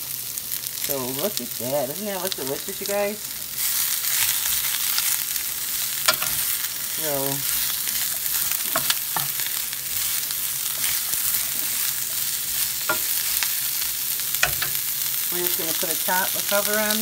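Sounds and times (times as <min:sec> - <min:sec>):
vegetables sizzling in hot oil: 0:00.0 - 0:17.0
wooden spatula stirring: 0:07.4 - 0:13.6.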